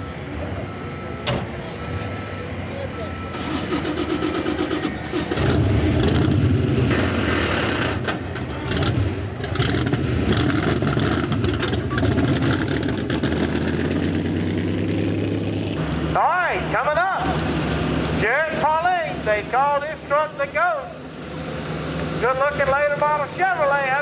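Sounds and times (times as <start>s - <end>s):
truck engine revving high: 0.7s - 19.5s.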